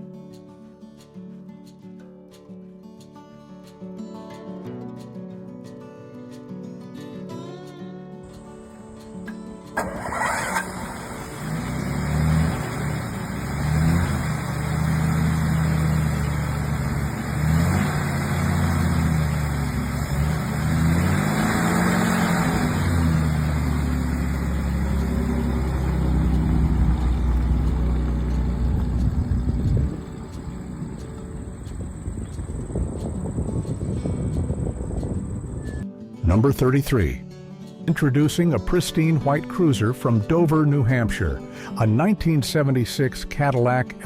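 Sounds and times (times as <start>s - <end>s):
car engine revving: 8.6s - 35.8s.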